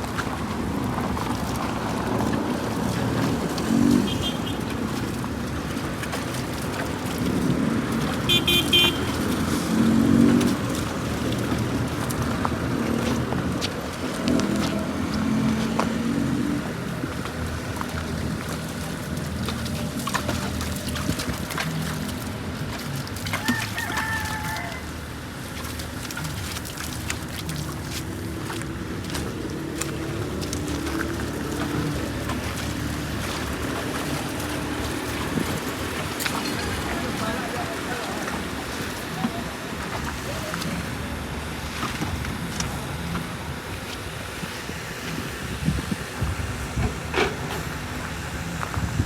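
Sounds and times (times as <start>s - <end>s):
vehicle engines rumbling: 0.0s - 49.0s.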